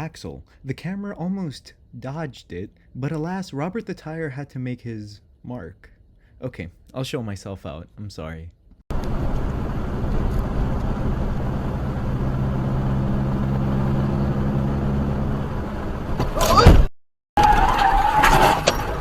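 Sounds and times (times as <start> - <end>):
car engine and road noise: 8.9 - 16.6.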